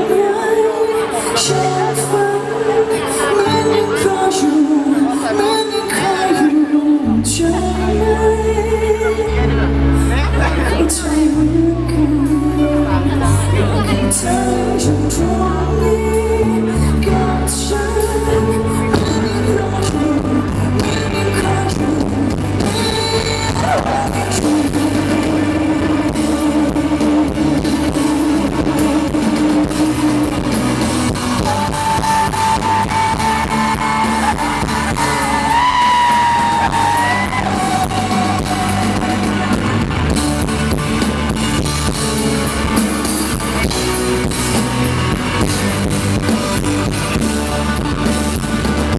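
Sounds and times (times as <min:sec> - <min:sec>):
woman singing: 0:00.0 - 0:40.7
live band with guitar: 0:00.0 - 0:48.9.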